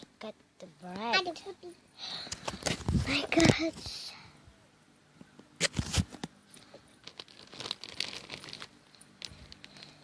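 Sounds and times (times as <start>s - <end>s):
plastic bags crinkling: 5.6s - 10.0s.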